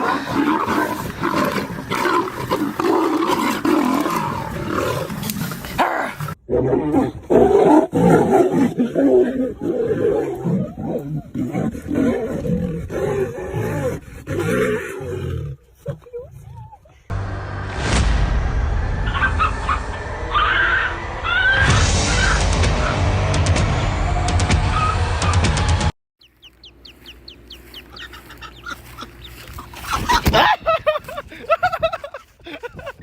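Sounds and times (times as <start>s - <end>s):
big cats growling and roaring: 0.0s - 16.5s.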